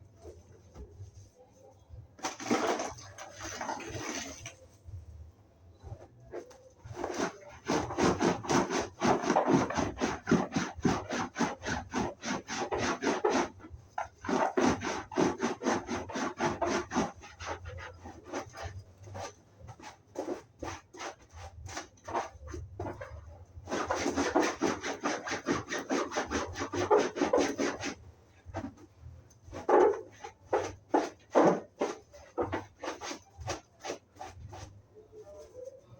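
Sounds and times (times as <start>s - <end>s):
scrubbing upholstery: 6.3s - 28.8s, 29.5s - 34.8s.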